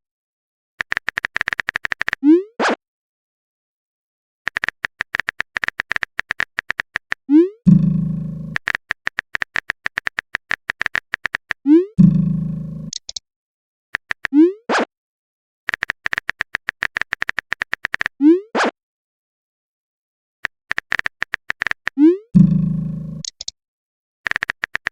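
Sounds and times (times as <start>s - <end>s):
keyboard tap clicks: 8.6s - 11.6s, 15.7s - 18.1s, 20.4s - 21.9s.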